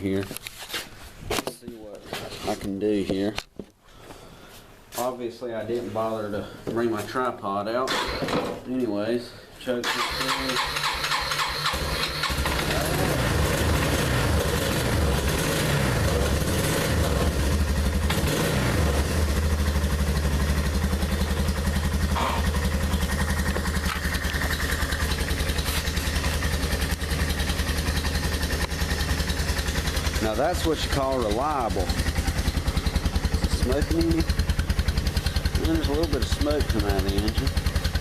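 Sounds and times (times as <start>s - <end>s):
atv engine running: 10.0s - 38.0s.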